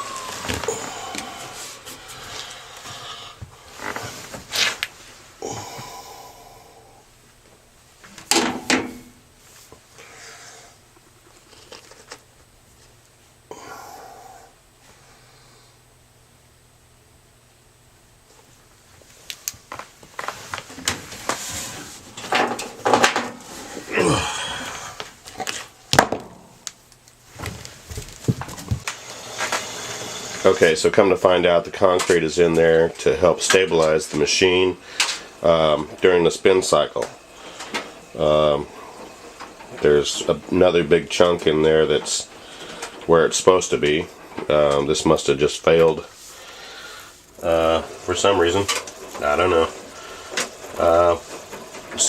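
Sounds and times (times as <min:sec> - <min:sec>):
parts clattering and scraping: 0:11.0 - 0:13.0, 0:20.2 - 0:29.6, 0:45.7 - 0:52.0.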